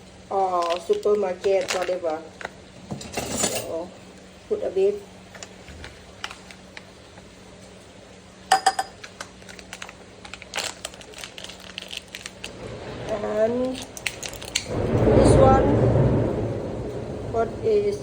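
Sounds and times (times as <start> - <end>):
steady low hum: 12.4 - 18.0.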